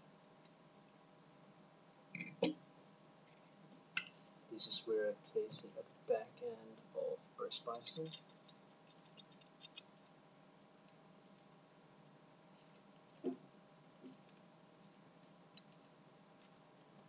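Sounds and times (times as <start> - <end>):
faint steady hum: 0.0 - 17.0
plastic toy parts clicking: 8.9 - 9.9.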